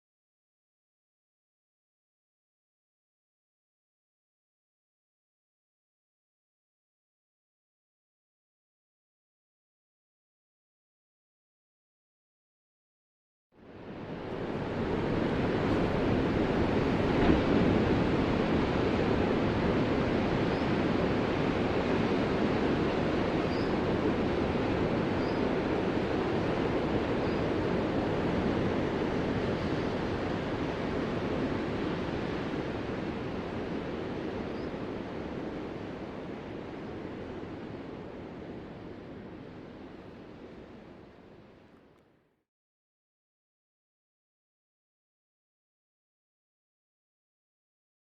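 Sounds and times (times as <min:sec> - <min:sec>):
ocean waves washing: 0:13.7 - 0:41.5.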